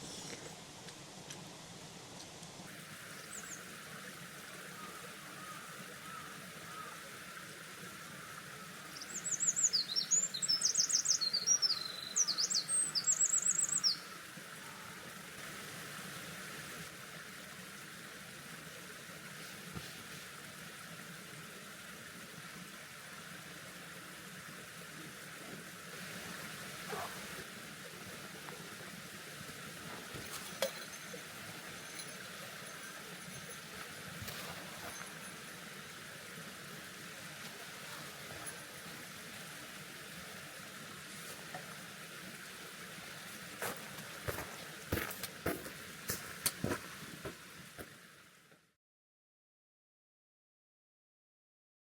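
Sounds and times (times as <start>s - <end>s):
mountain stream rushing: 0.0s - 48.5s
songbird twittering: 9.0s - 14.1s.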